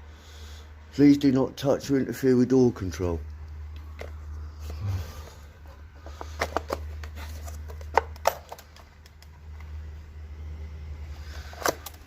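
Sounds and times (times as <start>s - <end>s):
low steady rumble: 1.6s - 12.0s
sharp clicks and taps: 7.8s - 9.7s.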